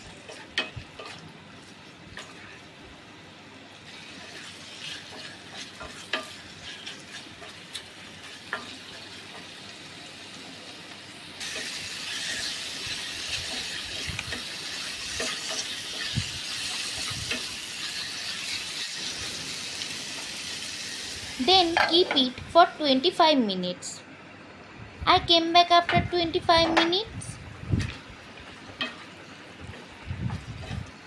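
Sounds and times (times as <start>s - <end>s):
chicken sizzling in a pan: 0.0s - 23.0s.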